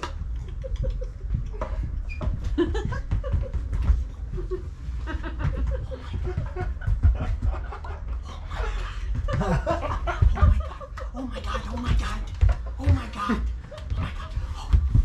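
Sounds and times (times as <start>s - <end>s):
audience laughing: 2.6s - 11.8s
voices: 8.2s - 15.0s.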